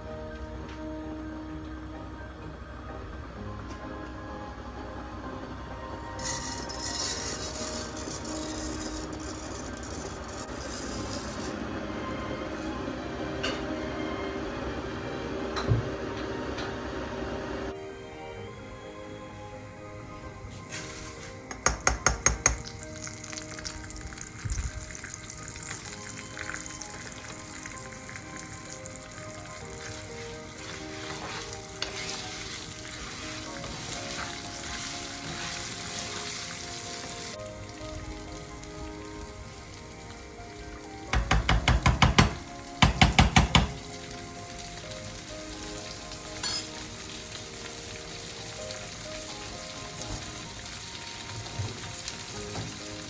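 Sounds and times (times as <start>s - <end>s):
food sizzling in a pan: 6.0s - 17.6s, 20.4s - 53.0s
rapid loud tapping: 41.2s - 43.8s.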